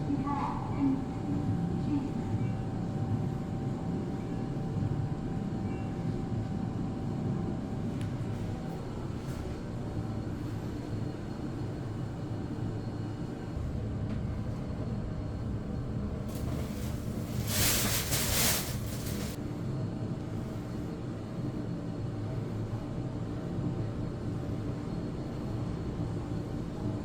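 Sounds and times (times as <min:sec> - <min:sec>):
elevator low rumble: 0:00.0 - 0:27.0
rushing hiss: 0:16.3 - 0:19.4.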